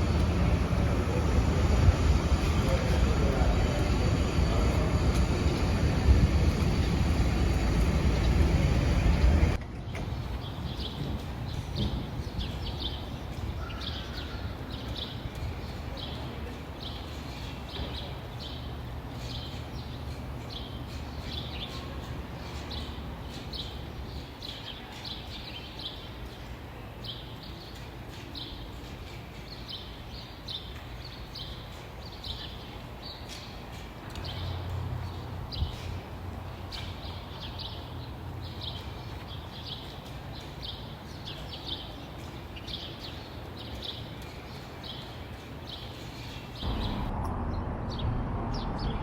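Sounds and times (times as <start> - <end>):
steady low rumble: 0.0 - 9.6, 46.6 - 49.0
birds chirping: 0.0 - 47.1.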